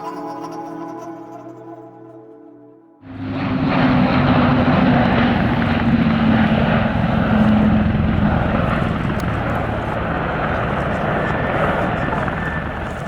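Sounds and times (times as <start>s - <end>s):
turboprop engines droning: 3.0s - 13.0s.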